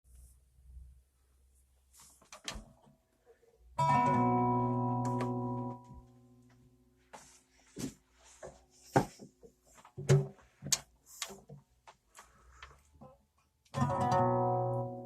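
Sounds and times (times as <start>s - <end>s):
plucked string chord: 3.8s - 6.5s, 13.8s - 15.0s.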